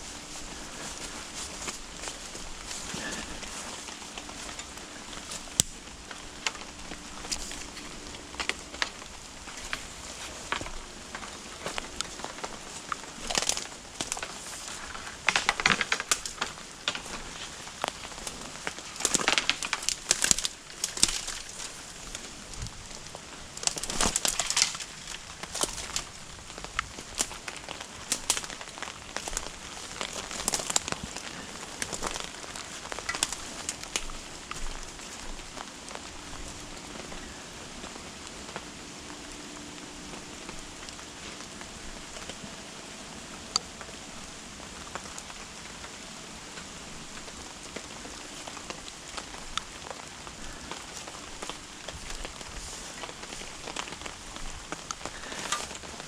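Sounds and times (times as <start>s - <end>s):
steady rain falling: 0.0s - 56.0s
sharp clicks and crackles: 0.1s - 39.2s, 43.4s - 56.0s.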